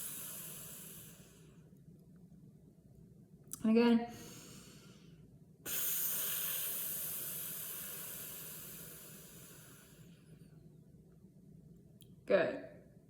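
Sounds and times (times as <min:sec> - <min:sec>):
faint in-breath: 0:00.0 - 0:01.6, 0:04.1 - 0:10.4
woman exhaling through teeth: 0:05.7 - 0:10.0.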